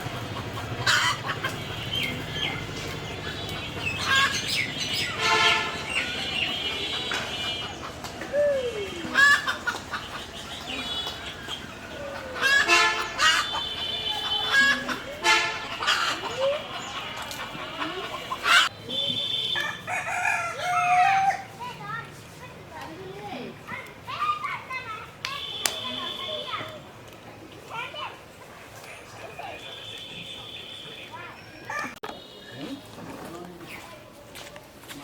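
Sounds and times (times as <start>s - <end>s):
chickens clucking: 0.0s - 18.7s.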